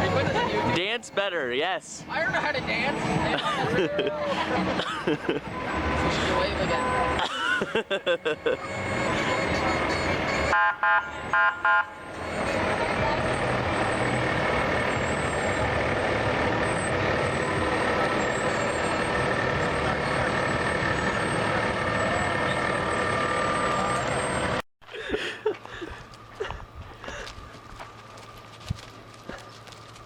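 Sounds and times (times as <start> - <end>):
truck engine running: 0.0 - 10.5, 12.0 - 24.6, 25.4 - 30.0
street noise: 0.0 - 30.0
truck horn blasts: 8.7 - 13.7.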